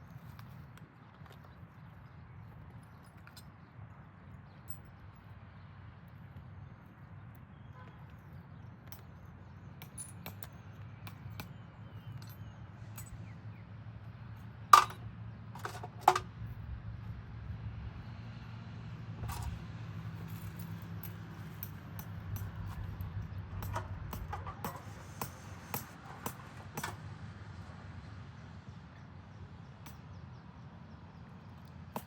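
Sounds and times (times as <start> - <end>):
metallic clinks and knocks: 14.8 - 16.3, 19.2 - 19.6, 20.2 - 27.0.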